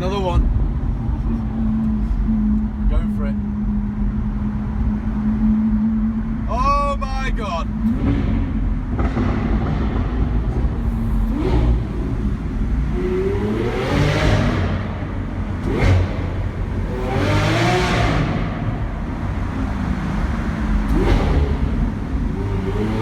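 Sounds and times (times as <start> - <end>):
car engine accelerating hard: 7.6 - 23.0.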